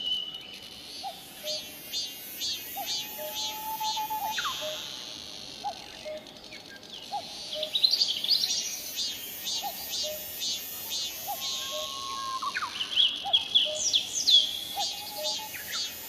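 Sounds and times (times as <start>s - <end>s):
cuckoo calling: 2.8s - 4.8s, 11.0s - 14.0s, 14.8s - 16.0s.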